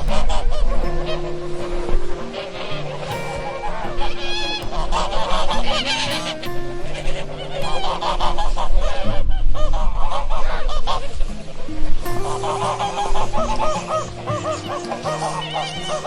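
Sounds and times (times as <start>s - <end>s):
low melody of held notes: 0.0s - 16.0s
geese honking: 7.1s - 11.1s, 12.2s - 16.0s.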